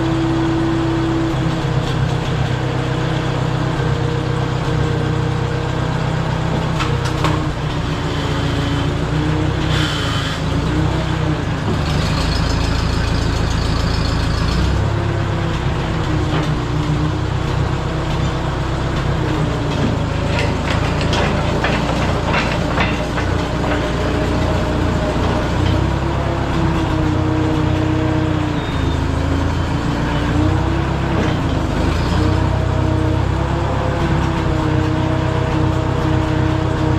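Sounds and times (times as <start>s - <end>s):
dozer engine running: 0.0s - 36.9s
metal clanks: 19.3s - 26.0s.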